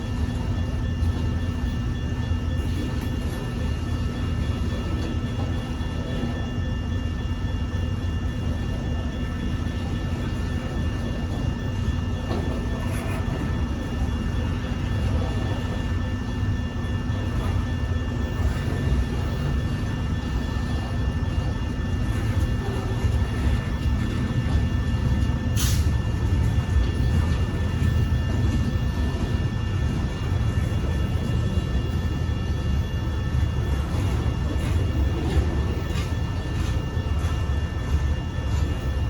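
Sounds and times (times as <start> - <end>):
diesel freight train rumbling: 0.0 - 39.0.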